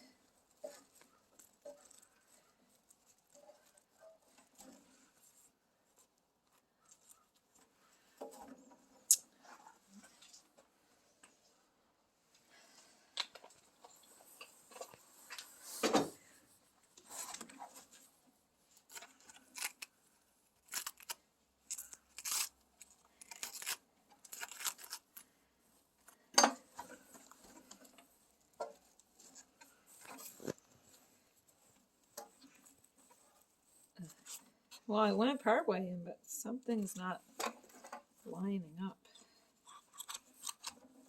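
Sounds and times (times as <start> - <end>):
cabbage crunching and creaking: 18.8 - 20.0, 20.6 - 25.4.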